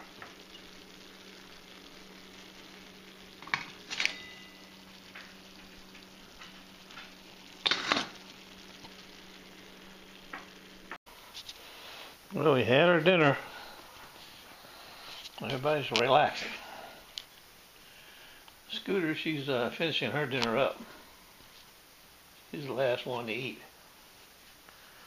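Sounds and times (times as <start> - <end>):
steady low hum: 0.0 - 19.0
food sizzling in skillet: 0.0 - 25.0.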